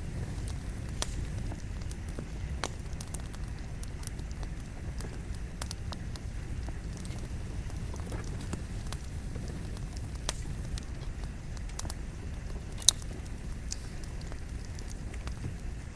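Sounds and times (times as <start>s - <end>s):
campfire crackling and popping: 0.0s - 15.9s
fire low rumble: 0.0s - 15.9s.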